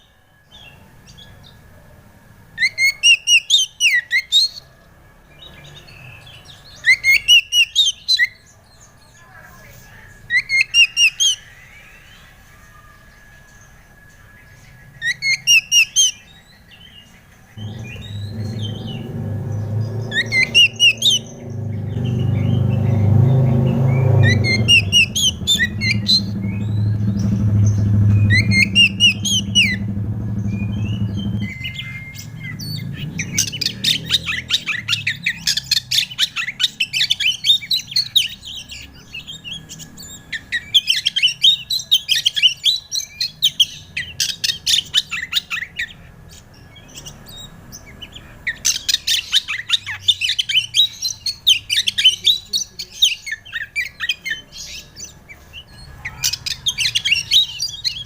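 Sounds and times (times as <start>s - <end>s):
bird whistled song: 2.6s - 4.6s, 5.3s - 8.6s, 10.2s - 58.0s
low steady hum: 17.6s - 33.3s
bird fast chattering notes: 17.6s - 36.6s.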